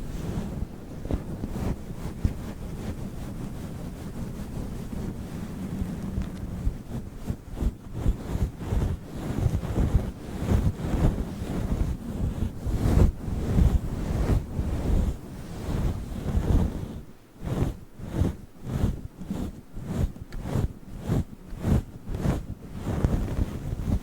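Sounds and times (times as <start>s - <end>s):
microphone windscreen rubbing: 0.0s - 24.0s.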